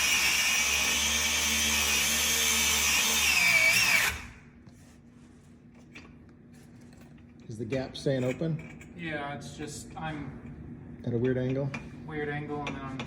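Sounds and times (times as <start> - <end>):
power tool whining: 0.0 - 4.4.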